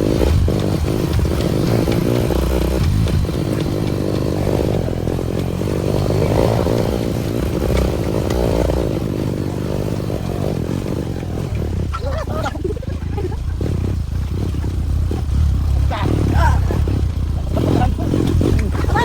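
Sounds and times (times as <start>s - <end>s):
motorcycle clattering and scraping: 0.0s - 19.0s
motorcycle engine running: 0.0s - 19.0s.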